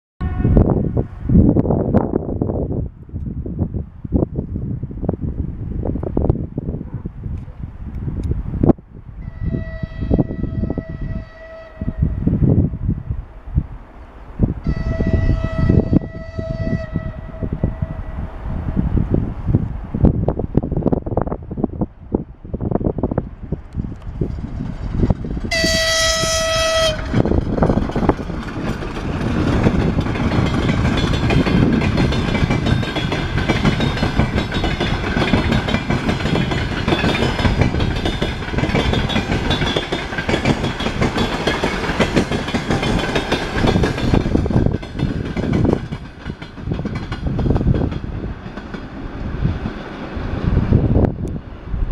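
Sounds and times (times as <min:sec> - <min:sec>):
locomotive horn blast: 0:00.2 - 0:00.8, 0:09.2 - 0:12.3, 0:14.6 - 0:18.3, 0:25.5 - 0:27.2
train wheels clattering on rails: 0:23.7 - 0:50.2.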